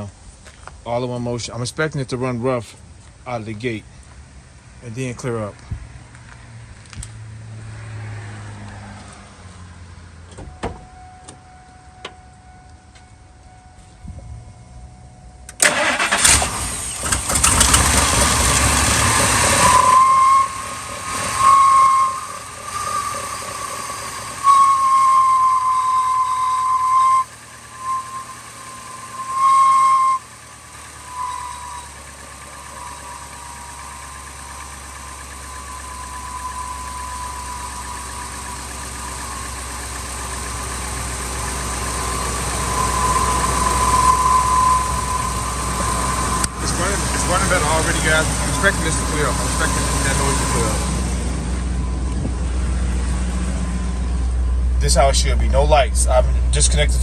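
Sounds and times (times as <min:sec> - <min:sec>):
high whistle-like tone: 0:10.4 - 0:16.0, 0:19.0 - 0:50.9
engine starting and running rough: 0:15.4 - 0:57.0.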